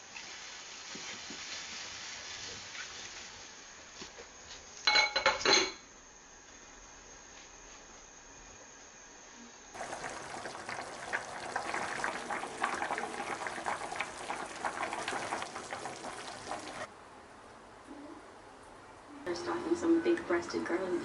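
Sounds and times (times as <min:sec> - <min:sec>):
food bubbling on stove: 0:09.7 - 0:16.9.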